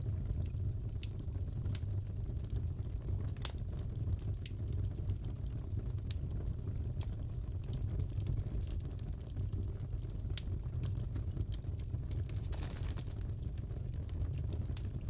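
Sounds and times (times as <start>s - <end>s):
fire pops and snaps: 0.0s - 15.0s
low rumble of burning wood: 0.0s - 15.0s.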